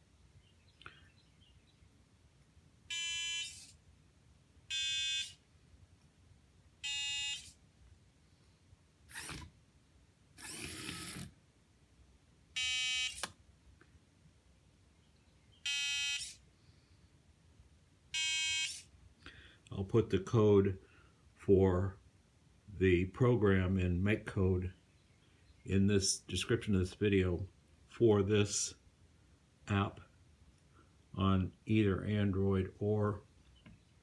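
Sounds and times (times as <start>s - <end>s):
electronic buzzer beeps: 2.9s - 3.8s, 4.7s - 5.4s, 6.8s - 7.6s, 12.6s - 13.3s, 15.6s - 16.4s, 18.2s - 18.9s
small motor whirring: 3.4s - 3.8s, 7.2s - 7.6s, 9.1s - 9.5s, 10.4s - 11.3s, 16.1s - 16.4s.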